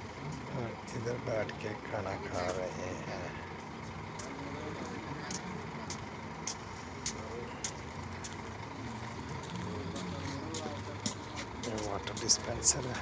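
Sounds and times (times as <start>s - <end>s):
faint voices: 0.0s - 13.0s
low engine hum: 0.0s - 13.0s.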